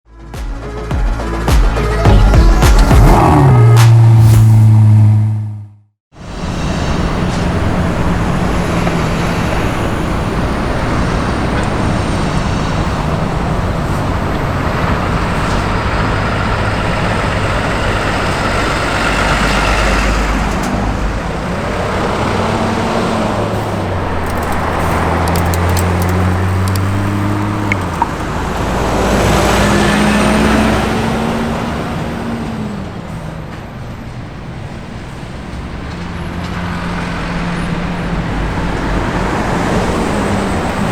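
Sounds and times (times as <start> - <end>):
car engines running: 2.8 - 40.9
steady road noise: 2.8 - 40.9.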